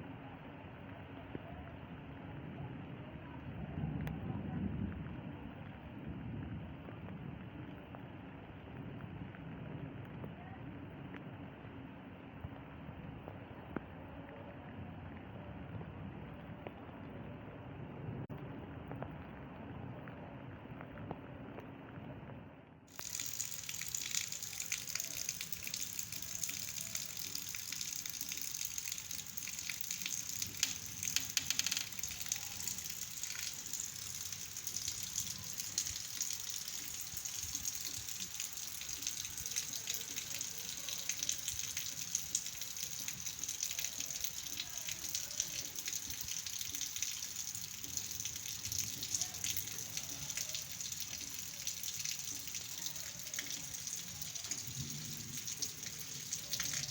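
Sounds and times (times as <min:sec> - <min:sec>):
heavy rain pouring: 0:22.9 - 0:56.9.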